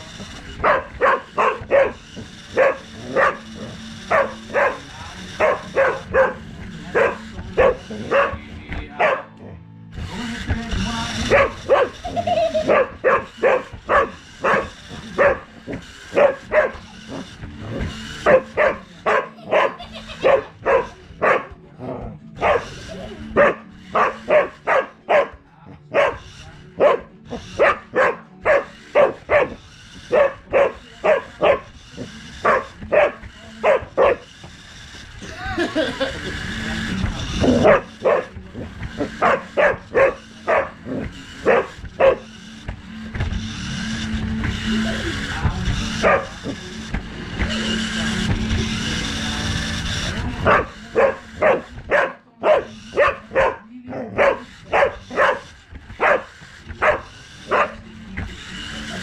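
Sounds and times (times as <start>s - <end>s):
dog barking: 0.6s - 8.4s, 9.0s - 9.4s, 11.2s - 17.3s, 18.2s - 21.6s, 22.4s - 34.3s, 37.4s - 38.3s, 39.0s - 42.3s, 45.9s - 46.6s, 50.4s - 57.9s.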